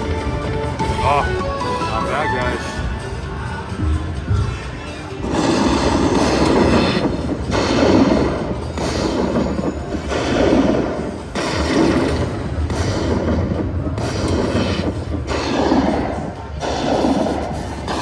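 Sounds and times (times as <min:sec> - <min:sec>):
slot machine sound effects: 0:00.0 - 0:12.7.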